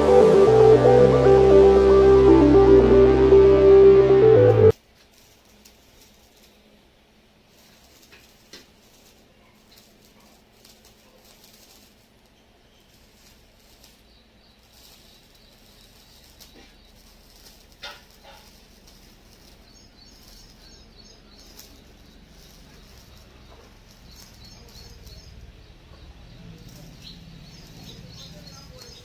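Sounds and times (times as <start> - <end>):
small birds chirping: 12.2 - 29.0.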